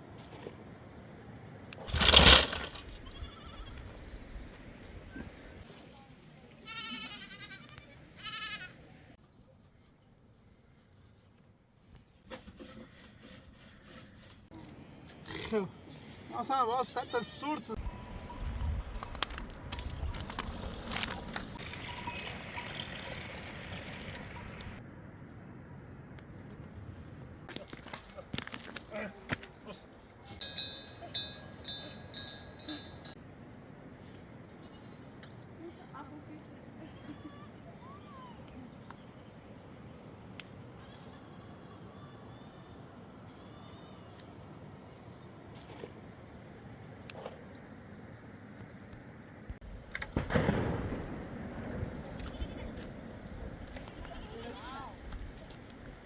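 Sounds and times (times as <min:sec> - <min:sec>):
livestock bleating: 0:06.6 - 0:08.8, 0:16.9 - 0:17.8
water trickling: 0:21.6 - 0:24.8.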